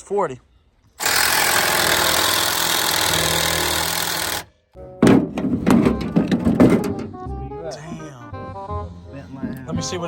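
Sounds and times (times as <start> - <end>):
loud machine noise: 1.0 - 4.4
music: 4.8 - 10.0.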